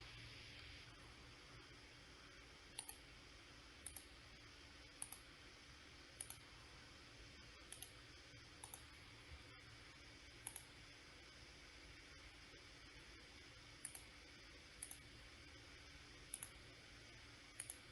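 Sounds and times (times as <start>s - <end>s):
faint steady hiss: 0.0s - 17.9s
computer mouse clicks: 2.7s - 3.1s, 3.8s - 4.2s, 4.9s - 5.3s, 6.2s - 6.4s, 7.7s - 8.0s, 8.6s - 8.9s, 10.4s - 10.8s, 13.8s - 14.2s, 14.8s - 15.1s, 16.2s - 16.6s, 17.5s - 17.9s.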